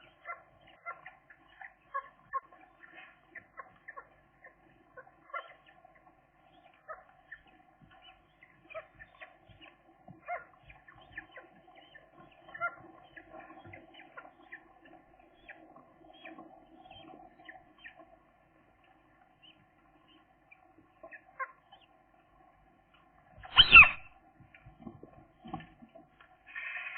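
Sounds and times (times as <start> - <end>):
gull chicks peeping: 0.0 - 18.1, 23.4 - 24.1.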